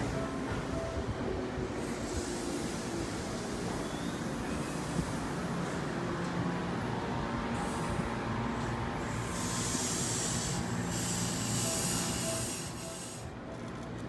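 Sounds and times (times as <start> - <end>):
electric train rumbling: 0.0 - 14.0
high hiss of train brakes: 1.8 - 5.8, 9.0 - 13.3.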